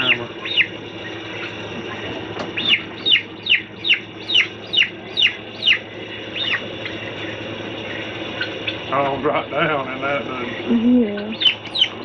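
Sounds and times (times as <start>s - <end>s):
young bird peeping: 0.0s - 12.0s.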